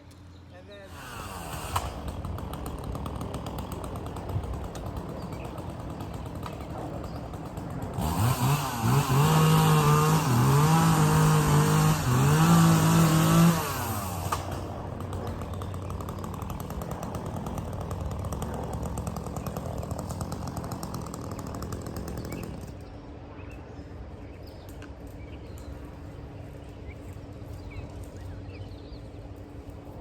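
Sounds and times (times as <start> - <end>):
chainsaw running: 0.8 - 22.8.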